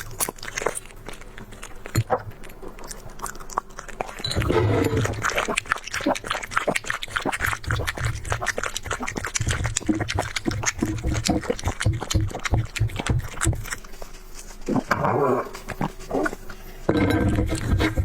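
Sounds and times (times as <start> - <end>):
pet chewing and lapping: 0.0 - 18.0
low growl: 4.2 - 5.5.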